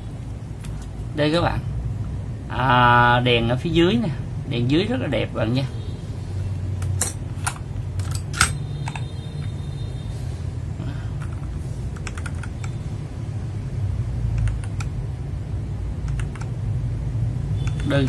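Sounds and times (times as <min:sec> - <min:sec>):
steady low hum: 0:00.0 - 0:18.0
mechanical keyboard keystrokes: 0:11.2 - 0:12.8, 0:14.4 - 0:15.0, 0:16.0 - 0:16.5, 0:17.6 - 0:18.0.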